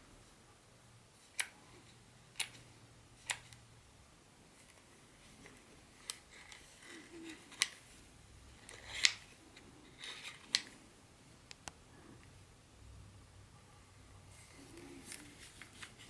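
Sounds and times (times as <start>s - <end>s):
soft rustling: 14.3s - 16.0s.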